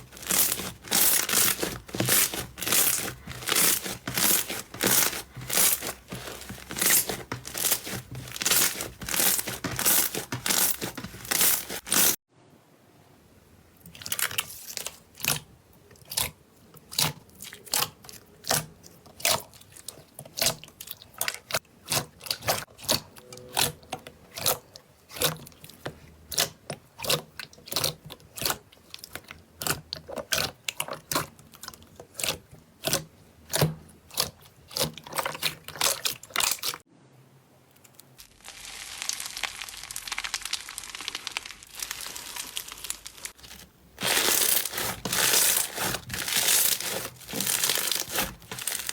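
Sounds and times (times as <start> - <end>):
crackling rustle: 0.0 - 12.2, 37.8 - 48.9.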